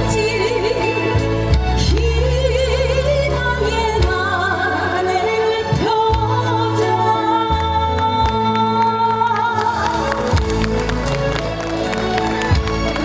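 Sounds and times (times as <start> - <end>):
woman singing: 0.0 - 10.6
pop accompaniment with bass and drums: 0.0 - 13.0.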